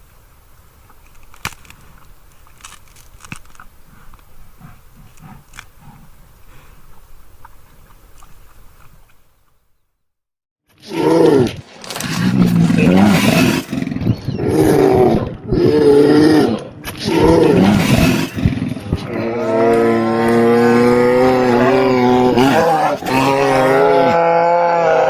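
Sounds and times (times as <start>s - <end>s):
bear roaring: 3.9s - 6.7s, 10.8s - 25.0s.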